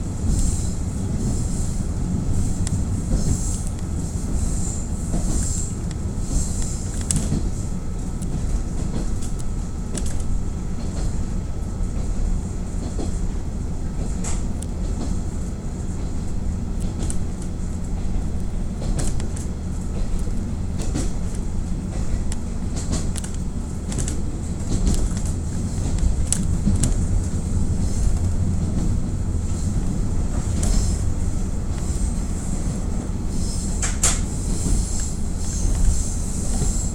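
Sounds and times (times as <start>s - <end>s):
diesel railcar engine drone: 0.0s - 36.9s
wheels clicking over rail joints: 16.0s - 32.2s.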